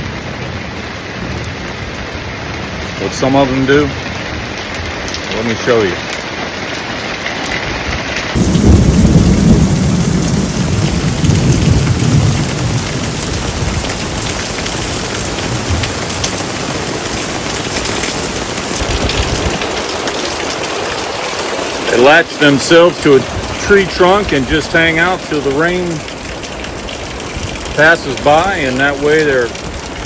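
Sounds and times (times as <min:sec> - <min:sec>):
steady rain falling: 0:00.0 - 0:30.0
low thunder rumble: 0:08.4 - 0:17.6, 0:18.3 - 0:21.0.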